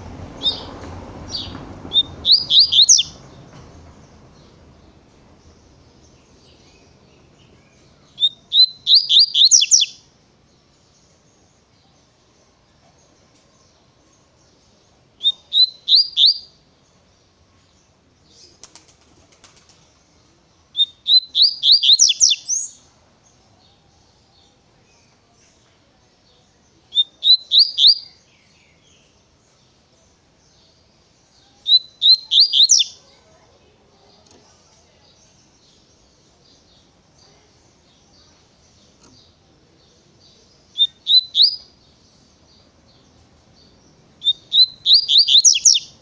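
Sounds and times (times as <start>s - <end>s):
bird singing whistled song: 0.4s - 0.7s, 1.3s - 4.0s, 6.3s - 10.1s, 15.2s - 16.6s, 20.7s - 22.9s, 26.8s - 29.2s, 31.4s - 33.0s, 40.2s - 41.8s, 44.2s - 46.0s.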